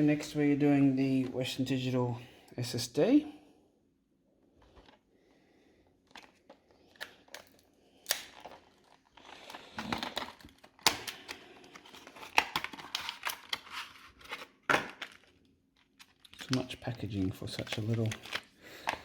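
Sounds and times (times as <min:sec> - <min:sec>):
packaging crinkling and tearing: 0:06.1 - 0:19.0.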